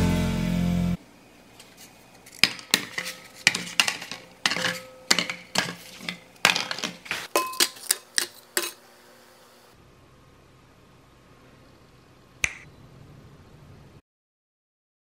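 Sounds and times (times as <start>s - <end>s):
cardboard tubes clunking into glass bowl: 2.4s - 8.0s.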